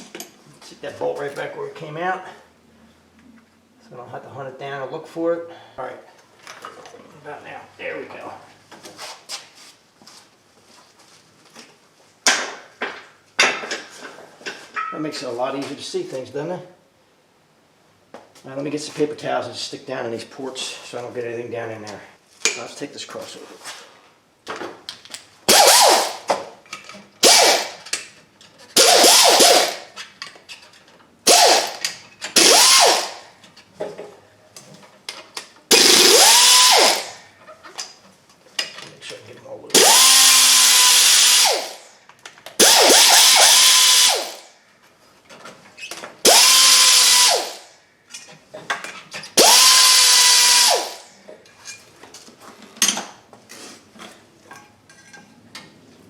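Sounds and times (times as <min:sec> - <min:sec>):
cordless power tool whine: 0:25.5 - 0:26.3, 0:27.2 - 0:27.8, 0:28.8 - 0:29.9, 0:31.3 - 0:33.2, 0:35.7 - 0:37.2, 0:39.8 - 0:41.9, 0:42.6 - 0:44.4, 0:46.2 - 0:47.7, 0:49.4 - 0:51.1
clicks of tool and metal: 0:27.8 - 0:28.8, 0:51.3 - 0:55.8.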